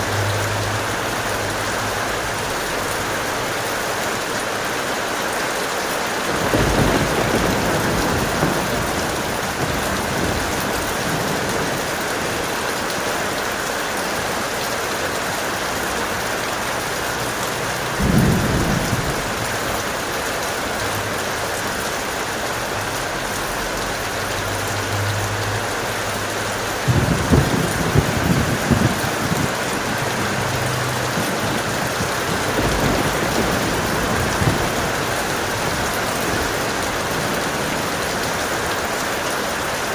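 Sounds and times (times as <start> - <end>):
heavy rain: 0.0 - 39.9
thunder rumbling: 6.2 - 13.6, 17.2 - 21.2, 25.4 - 39.9.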